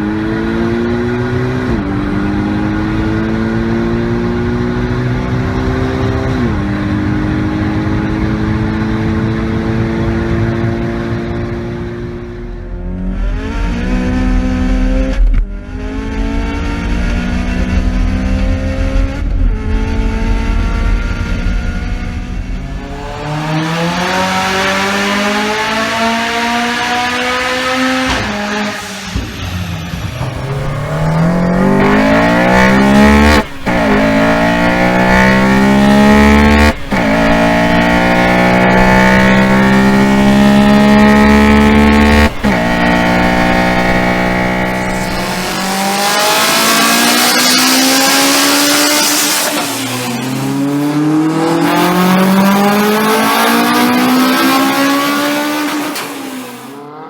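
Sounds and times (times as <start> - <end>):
car engine accelerating hard: 0.0 - 57.0
hissing noise: 28.3 - 47.5.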